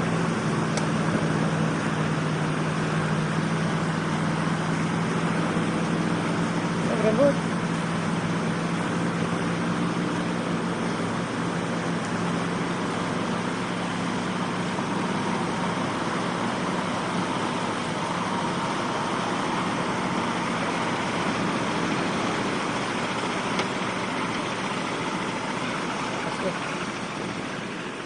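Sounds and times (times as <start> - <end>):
heavy vehicle engine running: 0.0 - 28.0.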